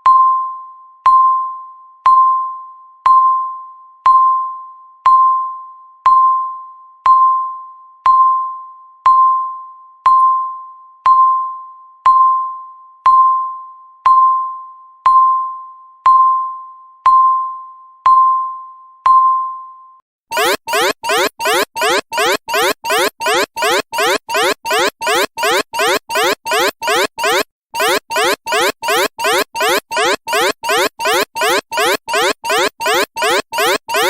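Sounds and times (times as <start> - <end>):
alarm with rising sweeps: 20.3 - 34.0
bell-like timer beep: 20.3 - 34.0.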